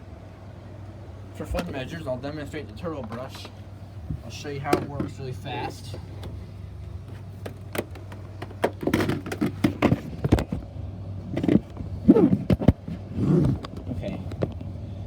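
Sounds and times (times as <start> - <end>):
steady low hum: 0.0 - 15.0
plastic clicks and rattles: 7.4 - 10.6.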